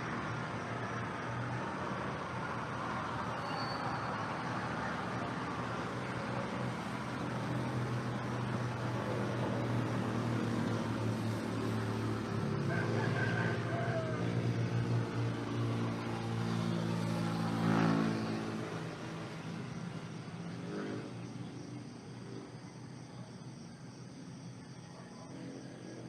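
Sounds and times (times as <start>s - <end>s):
rooster crowing: 12.6s - 14.6s.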